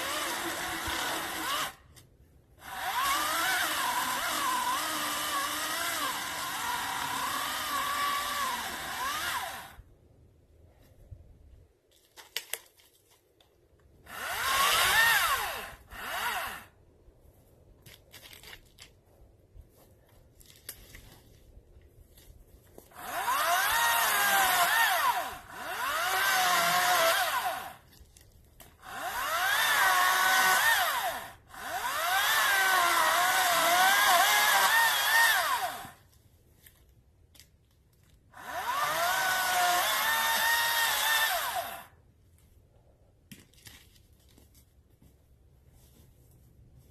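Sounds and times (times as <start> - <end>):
electric chainsaw cutting wood: 0.0 - 1.9, 2.6 - 9.8, 14.1 - 16.8, 22.9 - 27.9, 28.8 - 36.0, 38.4 - 41.9.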